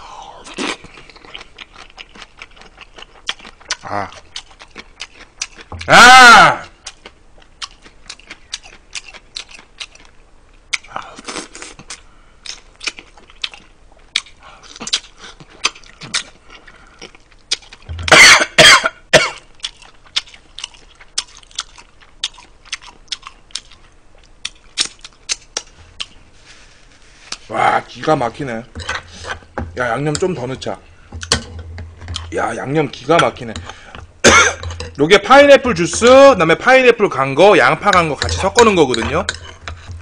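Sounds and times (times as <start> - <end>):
person coughing: 18.0 - 19.4, 34.2 - 34.8.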